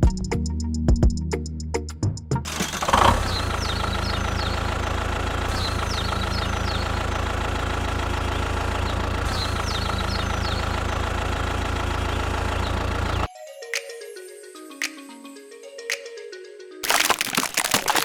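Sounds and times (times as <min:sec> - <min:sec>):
tractor engine idling: 0:02.5 - 0:13.2.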